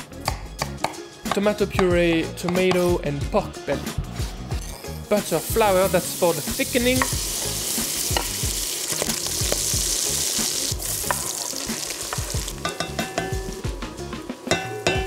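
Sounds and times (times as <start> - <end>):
meat sizzling in butter: 5.2 - 15.0.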